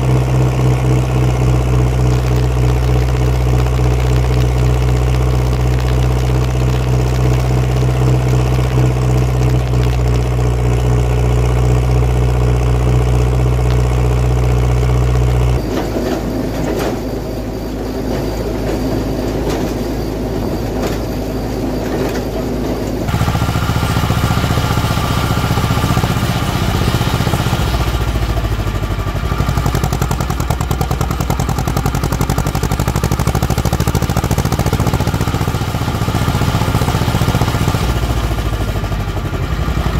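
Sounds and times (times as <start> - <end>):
farm machinery engines running: 0.0 - 39.9.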